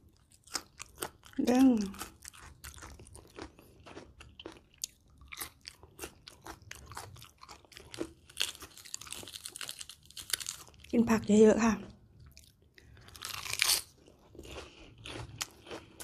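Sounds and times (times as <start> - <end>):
person chewing and crunching: 0.0 - 11.0, 12.1 - 16.0
lettuce leaf tearing: 13.2 - 13.9.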